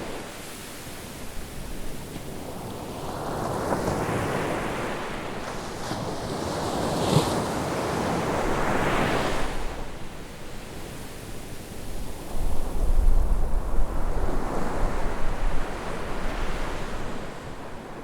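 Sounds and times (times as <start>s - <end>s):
wind noise on microphone: 11.8s - 17.9s.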